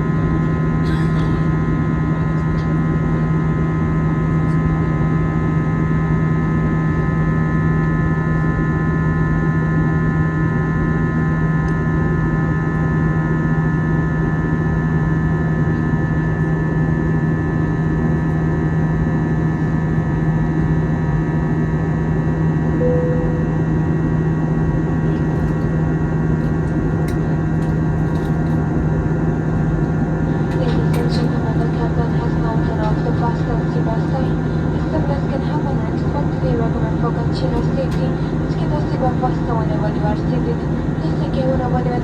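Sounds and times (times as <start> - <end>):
low cabin hum: 0.8 - 1.6, 22.8 - 42.0.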